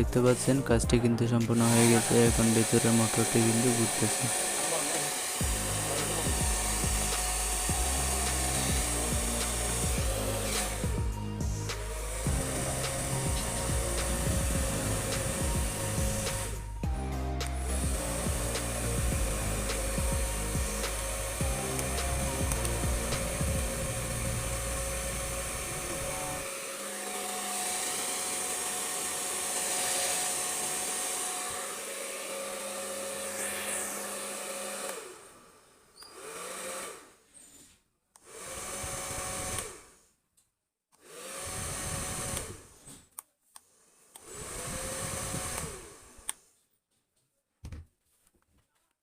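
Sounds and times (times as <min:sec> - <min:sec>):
hair dryer running: 0:00.0 - 0:37.2, 0:38.2 - 0:40.0, 0:41.0 - 0:42.8, 0:43.8 - 0:46.4.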